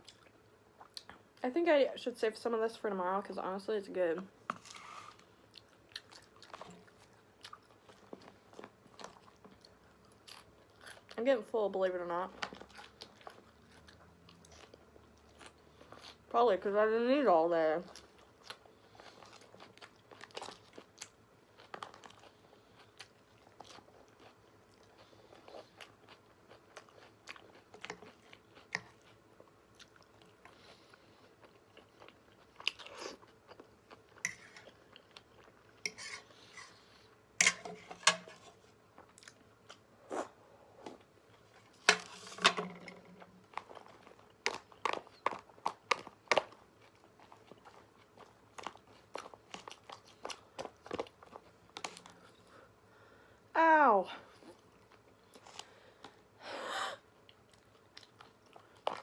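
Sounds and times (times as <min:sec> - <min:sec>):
person chewing and crunching food: 0:04.5 - 0:11.2, 0:12.3 - 0:16.3, 0:17.8 - 0:42.4, 0:43.0 - 0:53.2, 0:54.3 - 0:56.4, 0:57.2 - 0:59.0.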